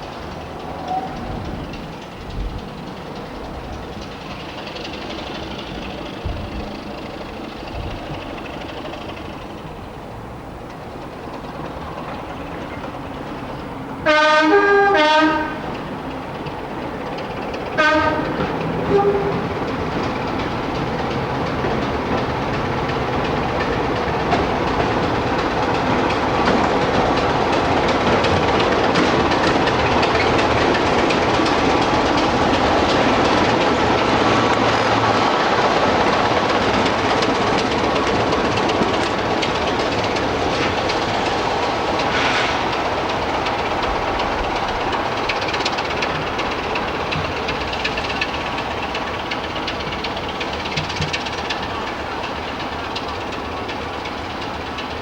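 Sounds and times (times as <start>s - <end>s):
train rumbling past on rails: 0.0s - 55.0s
locomotive horn blasts: 14.0s - 15.7s, 17.8s - 19.6s.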